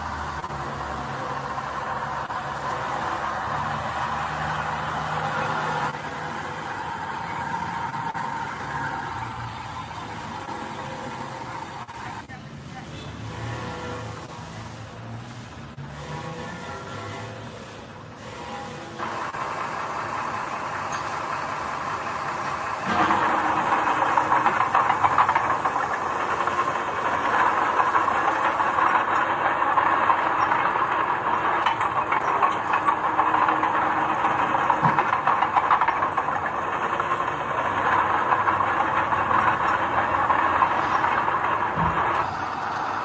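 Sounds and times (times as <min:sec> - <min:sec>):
earth-moving machinery rattling: 0:19.0 - 0:43.0.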